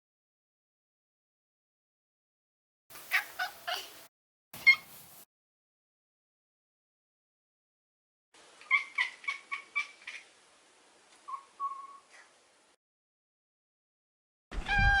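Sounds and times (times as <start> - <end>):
cat chirping: 4.6 - 4.9, 8.6 - 10.3.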